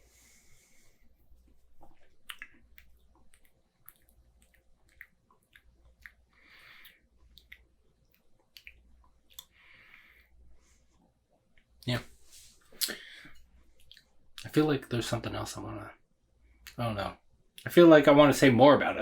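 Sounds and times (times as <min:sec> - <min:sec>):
lip smacks and tongue clicks: 0:01.8 - 0:09.6.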